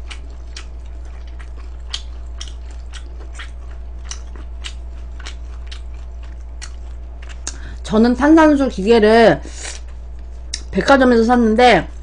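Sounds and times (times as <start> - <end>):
crunchy chewing: 0.0 - 7.7
steady low hum: 0.0 - 12.0.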